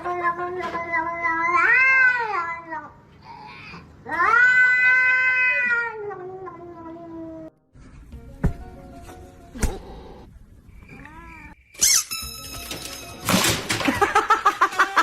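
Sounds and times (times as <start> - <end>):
cat yowling: 4.1 - 6.2.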